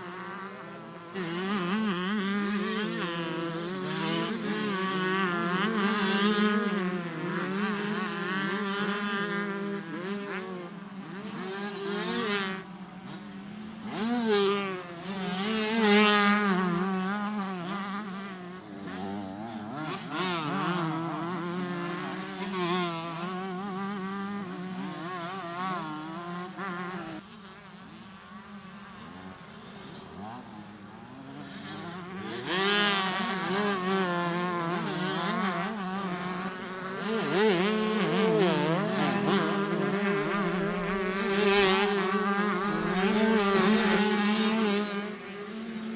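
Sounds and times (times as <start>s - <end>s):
motocross bikes revving: 0.1s - 26.9s, 28.9s - 45.9s.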